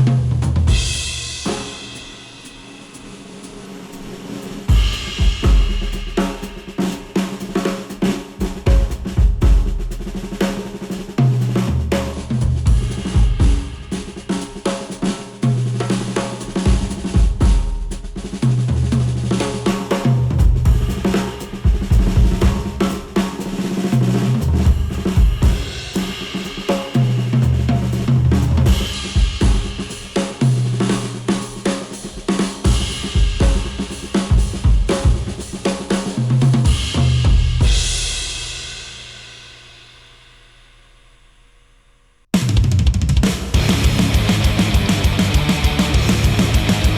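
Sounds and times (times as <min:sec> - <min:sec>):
drum kit: 0:00.0 - 0:41.5, 0:42.3 - 0:46.9
stepping bass line: 0:43.6 - 0:46.9.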